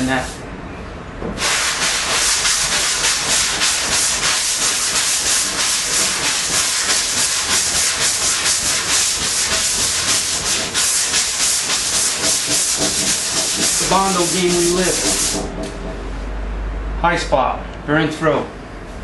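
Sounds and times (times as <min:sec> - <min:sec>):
sandpaper rasping on panel: 0:01.4 - 0:15.9.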